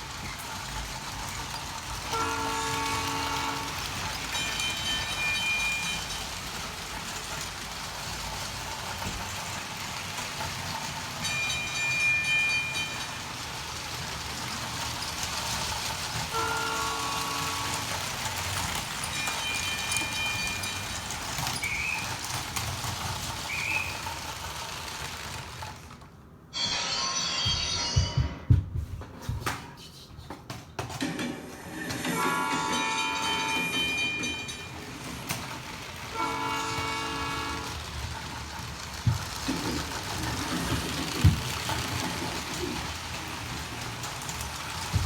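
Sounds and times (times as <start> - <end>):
toy train rumbling: 0.0 - 28.6, 30.5 - 45.0
toy train horn blasts: 2.0 - 6.0, 16.2 - 18.4, 32.1 - 34.0, 36.0 - 38.2.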